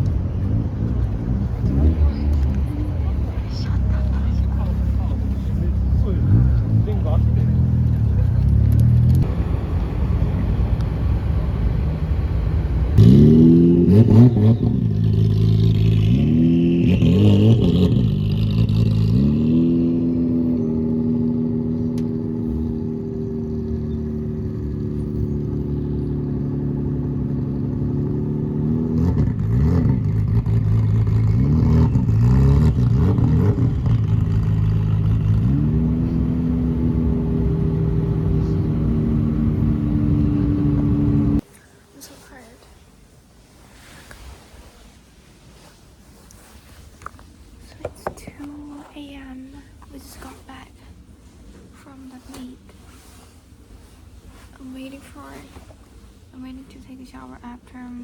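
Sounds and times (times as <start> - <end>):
car engine accelerating through gears: 0.0 - 41.4.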